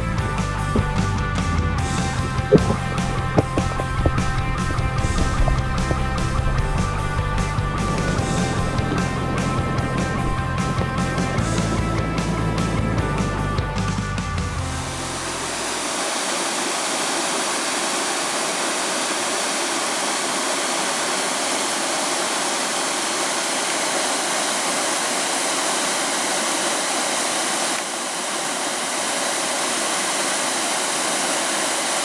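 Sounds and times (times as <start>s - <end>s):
creek water rushing: 0.0s - 32.0s.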